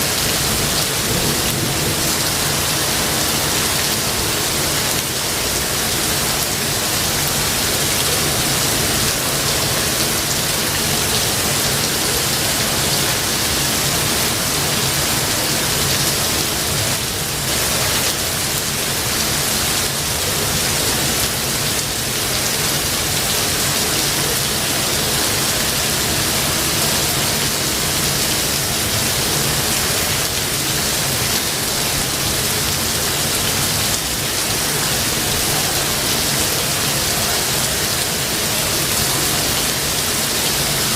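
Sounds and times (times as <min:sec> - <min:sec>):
rain falling in forest: 0:00.0 - 0:40.9.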